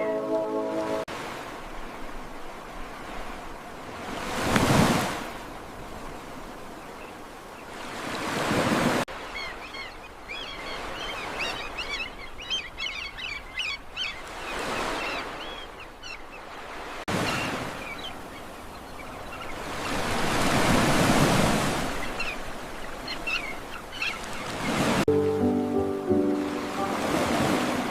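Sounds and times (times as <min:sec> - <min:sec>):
ocean waves washing in: 0:00.0 - 0:09.7, 0:16.5 - 0:27.9
small birds chirping: 0:22.0 - 0:24.9.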